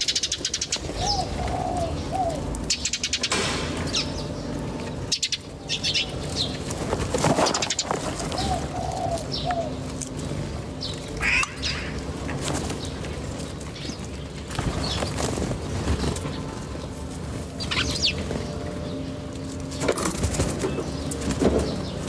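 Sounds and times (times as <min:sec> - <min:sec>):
birds chirping: 0:00.0 - 0:22.0
soft low bird call: 0:11.2 - 0:12.0.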